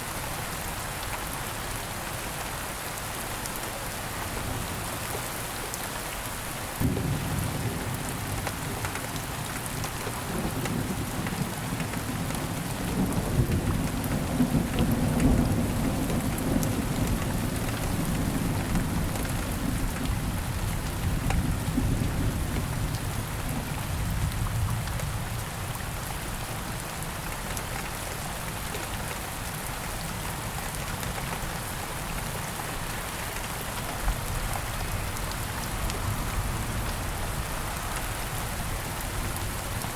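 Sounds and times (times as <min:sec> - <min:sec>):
rain falling on leaves: 0:00.0 - 0:39.9
rolling thunder: 0:06.8 - 0:08.3.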